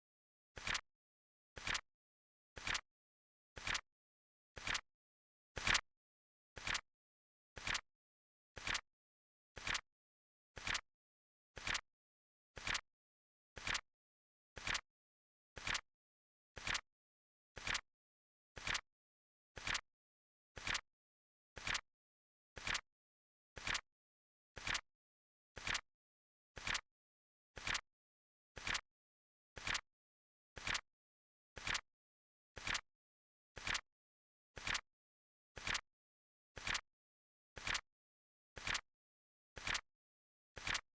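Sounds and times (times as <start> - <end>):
flip clock timer clicks: 32.6 - 32.8, 34.6 - 34.8, 35.6 - 35.8, 36.6 - 36.8, 37.6 - 37.8, 38.6 - 38.8, 39.6 - 39.8, 40.6 - 40.8.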